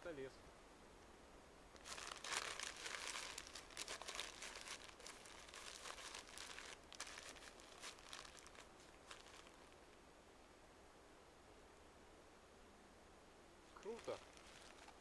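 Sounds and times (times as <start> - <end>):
paper crumpling and tearing: 1.8 - 9.8, 13.8 - 15.0.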